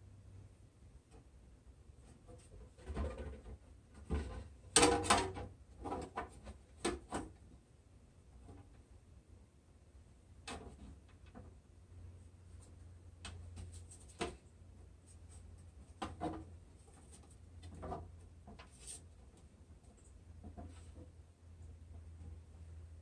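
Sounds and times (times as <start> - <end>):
low steady hum: 7.3 - 23.0
wooden parts knocking and scraping: 15.7 - 21.2.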